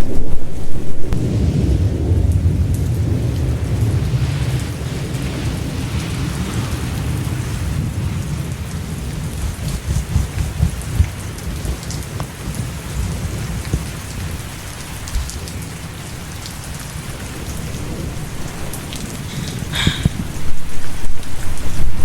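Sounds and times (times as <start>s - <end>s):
steady rain falling: 0.0s - 22.0s
low steady rumble: 8.3s - 22.0s.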